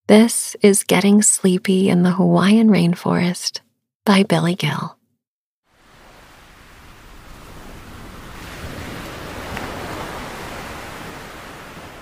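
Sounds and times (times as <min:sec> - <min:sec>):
ocean surf rushing: 0:05.7 - 0:12.0.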